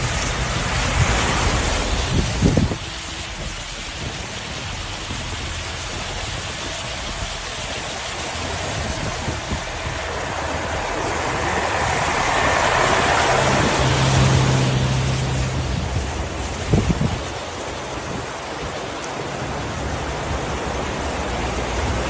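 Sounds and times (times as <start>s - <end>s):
rushing floodwater roar: 0.0s - 22.0s
steady low hum: 0.0s - 22.0s.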